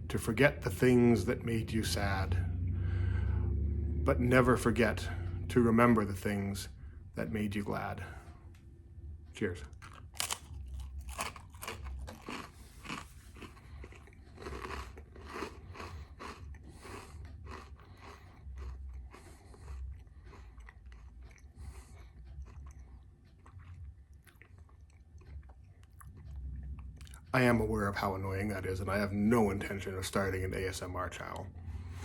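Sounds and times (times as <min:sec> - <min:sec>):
toast crunching while chewed: 0:09.7 - 0:27.3.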